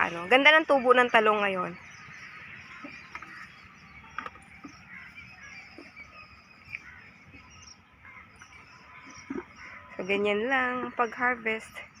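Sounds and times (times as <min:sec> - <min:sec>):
faint outdoor ambience: 0:00.0 - 0:12.0.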